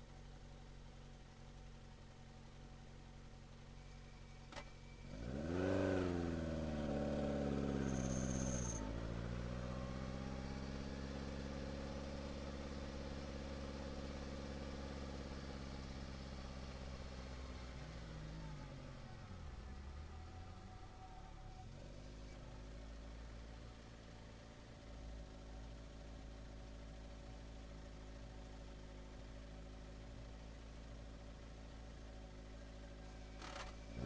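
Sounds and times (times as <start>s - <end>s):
car engine revving: 5.0s - 17.6s.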